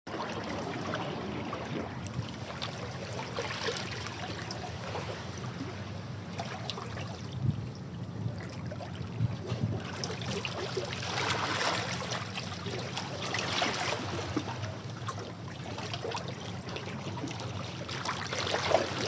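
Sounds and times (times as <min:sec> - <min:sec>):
sea waves washing over rocks: 0:09.6 - 0:14.4.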